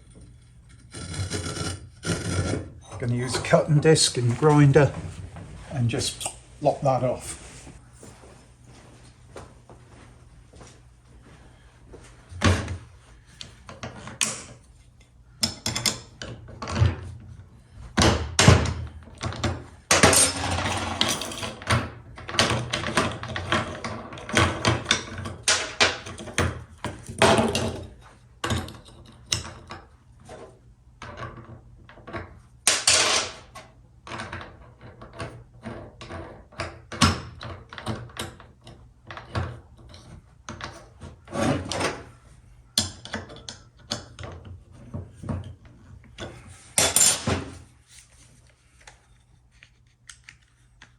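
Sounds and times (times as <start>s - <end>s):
tools and metal parts clattering: 15.4s - 17.2s, 18.1s - 30.0s, 31.0s - 42.2s, 42.8s - 47.7s.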